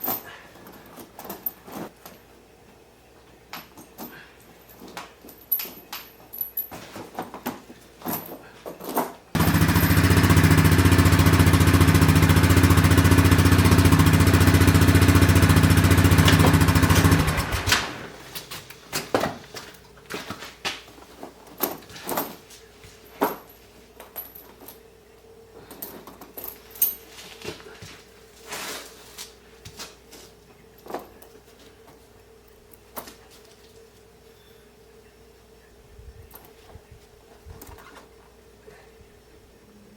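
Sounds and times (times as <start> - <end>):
small engine running: 9.4 - 18.2.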